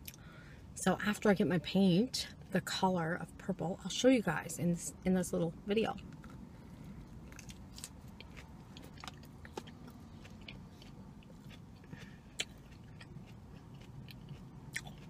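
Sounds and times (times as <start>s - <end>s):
low steady hum: 0.0s - 15.0s
person chewing salad: 6.0s - 15.0s.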